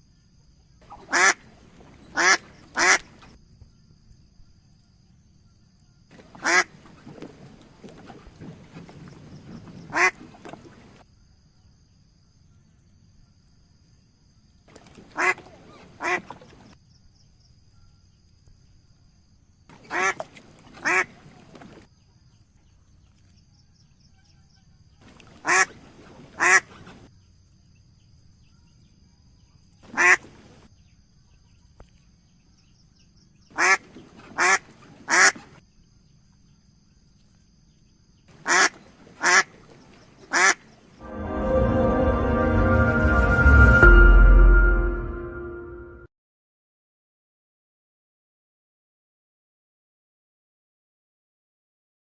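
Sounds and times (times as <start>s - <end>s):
duck quacking: 0.9s - 1.4s, 2.1s - 3.1s, 6.4s - 6.7s, 9.9s - 10.2s, 19.8s - 20.2s, 20.8s - 21.1s, 25.4s - 25.7s, 26.4s - 26.7s, 30.0s - 30.2s, 33.6s - 33.8s, 34.4s - 35.4s, 38.4s - 39.5s, 40.3s - 40.6s.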